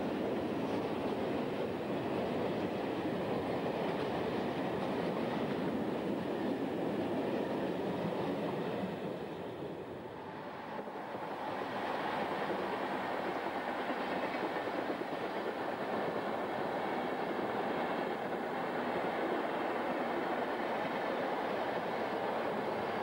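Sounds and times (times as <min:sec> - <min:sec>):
faint clickety-clack: 0:00.0 - 0:23.0
train wheels rumbling on rails: 0:00.0 - 0:23.0.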